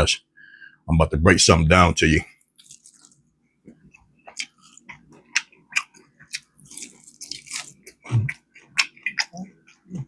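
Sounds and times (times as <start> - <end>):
chewing: 2.4 - 10.0
crunchy bites of fried chicken: 4.3 - 10.0.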